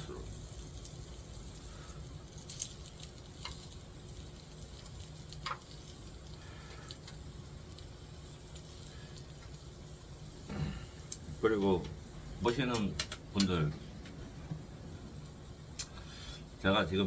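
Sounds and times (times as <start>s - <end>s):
low steady hum: 0.0s - 17.0s
meat sizzling in a pan: 0.0s - 17.0s
sharp clicks: 12.5s - 14.2s.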